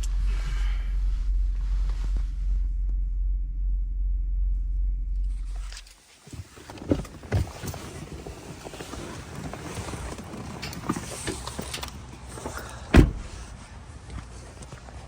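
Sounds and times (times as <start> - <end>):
truck engine drone: 0.0 - 6.0.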